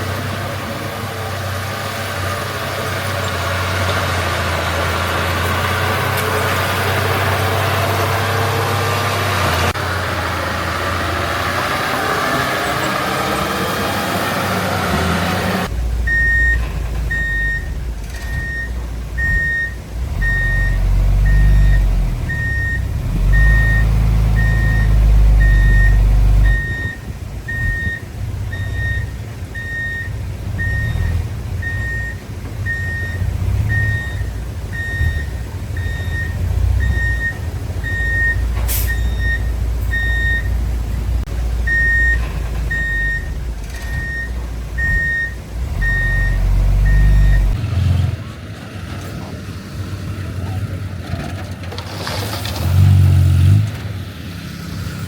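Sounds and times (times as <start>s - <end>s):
diesel engine rumble: 0.0s - 55.0s
reversing alarm beeping: 16.1s - 40.6s, 41.7s - 47.6s.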